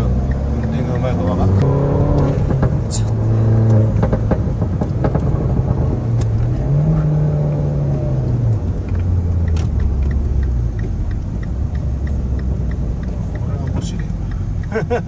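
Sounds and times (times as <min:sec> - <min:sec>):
car engine revving in cabin: 0:00.0 - 0:15.0
sharp click: 0:08.8 - 0:14.7.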